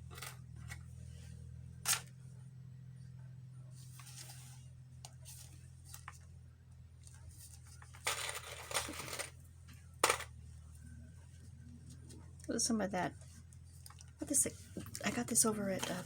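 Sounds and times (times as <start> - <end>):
paper rustling: 7.4 - 9.3.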